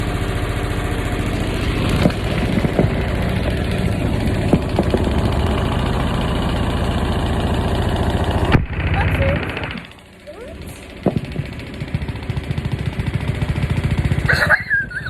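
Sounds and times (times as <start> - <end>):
washing machine rattling: 0.0 - 15.0
sharp knocks: 1.6 - 6.2, 10.8 - 13.3.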